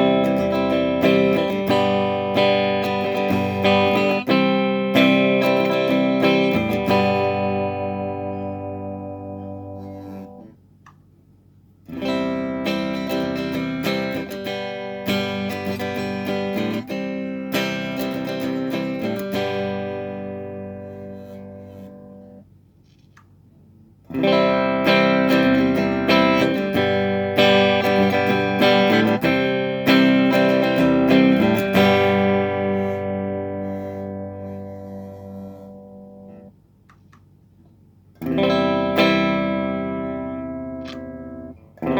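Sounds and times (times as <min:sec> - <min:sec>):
electric guitar strumming: 0:00.0 - 0:10.6, 0:11.9 - 0:22.4, 0:24.1 - 0:36.6, 0:38.2 - 0:41.9
small click: 0:10.8 - 0:11.1, 0:22.8 - 0:23.4, 0:36.8 - 0:37.8, 0:40.8 - 0:41.1.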